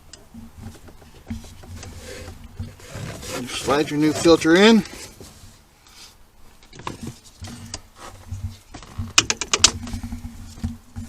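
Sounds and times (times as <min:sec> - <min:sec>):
plastic clicks and knocks: 0:08.7 - 0:10.0.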